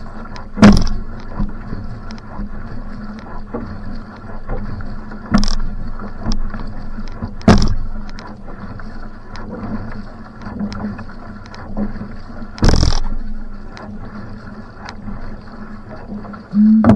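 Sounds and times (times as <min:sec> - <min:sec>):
paddle strokes: 0:00.0 - 0:16.9
water splashing along hull: 0:00.0 - 0:16.9
steady low hum: 0:12.5 - 0:16.9
loud thumps: 0:16.6 - 0:16.9.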